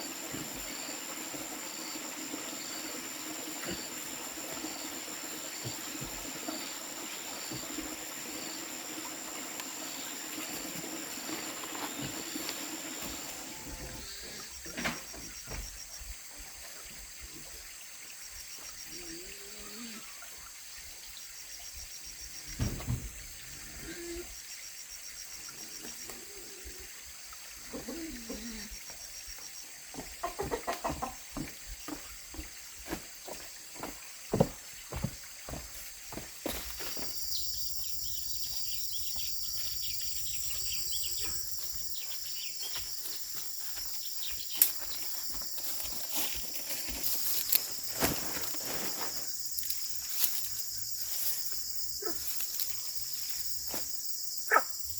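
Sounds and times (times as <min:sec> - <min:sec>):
running water: 0:00.0 - 0:54.9
knocks and rustles: 0:22.6 - 0:23.2.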